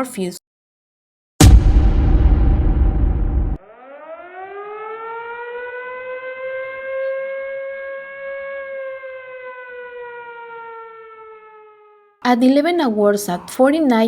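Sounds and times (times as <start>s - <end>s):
wailing warning siren: 3.6s - 12.4s.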